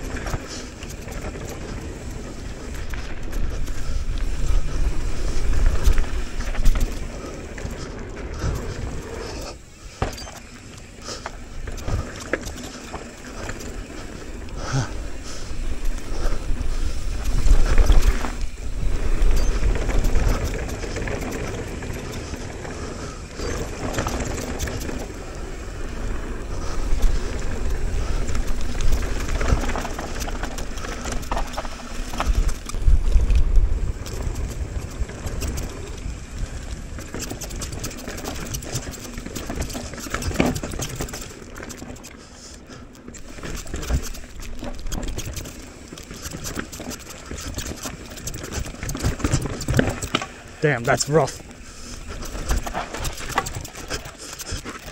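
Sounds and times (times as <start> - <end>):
wind rumbling on microphone: 0.0 - 9.5, 11.4 - 41.8
bike rattling over bumps: 0.0 - 54.9
bike tyres on dirt: 0.0 - 54.9.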